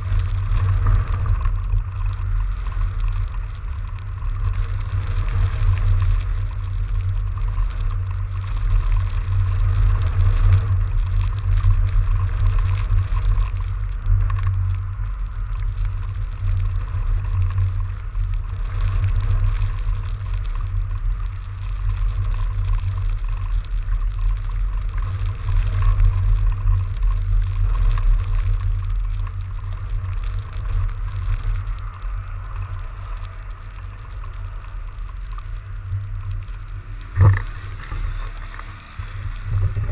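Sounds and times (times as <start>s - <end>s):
bike riding hiss: 0.0s - 39.9s
wind buffeting microphone: 34.4s - 39.9s.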